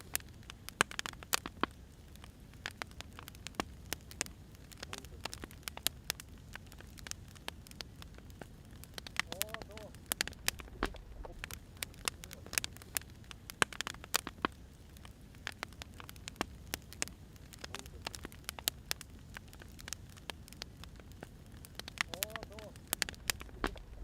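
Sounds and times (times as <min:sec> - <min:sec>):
firewood crackling and popping: 0:00.0 - 0:24.0
low steady rumble: 0:02.1 - 0:24.0.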